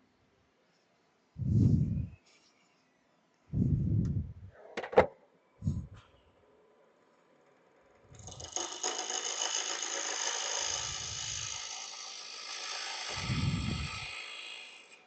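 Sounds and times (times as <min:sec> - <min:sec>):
low thuds: 0:01.4 - 0:02.2, 0:03.6 - 0:04.6
gouge scraping wood on lathe: 0:08.2 - 0:15.0.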